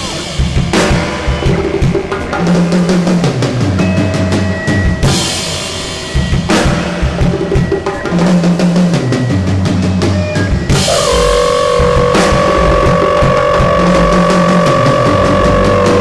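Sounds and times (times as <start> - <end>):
drum kit played loosely: 0.0 - 16.0
steady held tone: 10.1 - 16.0
wandering low pitched line: 10.4 - 16.0.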